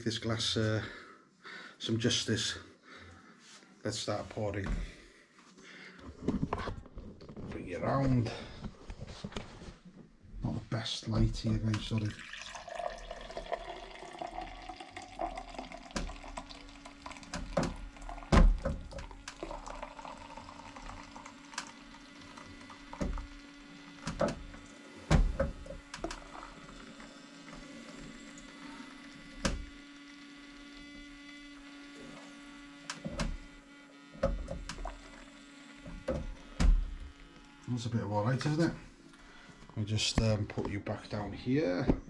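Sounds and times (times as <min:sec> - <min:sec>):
beer pouring into a glass: 0:11.4 - 0:23.4, 0:26.0 - 0:28.4.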